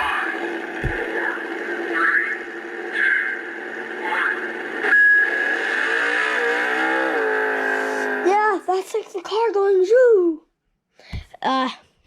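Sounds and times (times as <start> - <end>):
recorded engine revving: 0.0 - 8.5.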